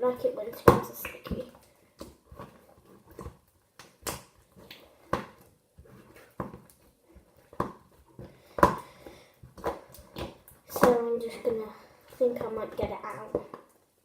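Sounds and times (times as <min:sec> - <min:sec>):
slime squelching and peeling: 0:00.0 - 0:13.6.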